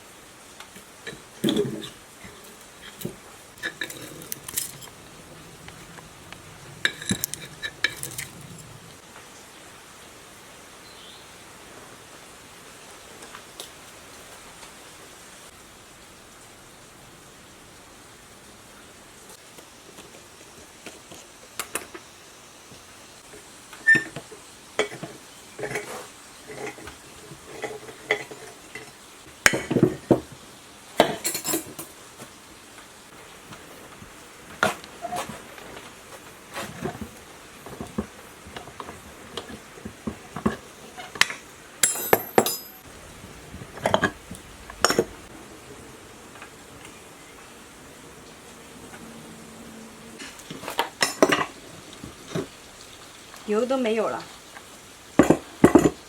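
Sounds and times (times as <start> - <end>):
metallic clinks of hand tools: 41.8 - 42.9.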